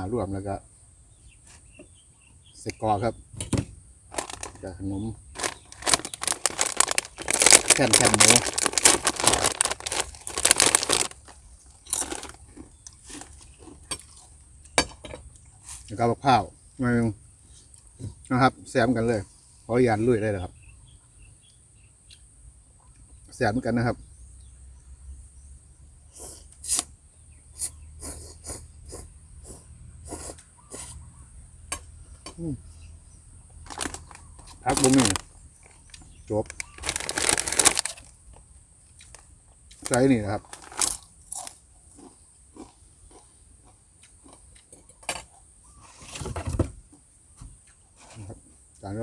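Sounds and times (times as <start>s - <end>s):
chewing crunches: 5.4s - 14.4s, 33.7s - 38.2s, 38.9s - 45.4s.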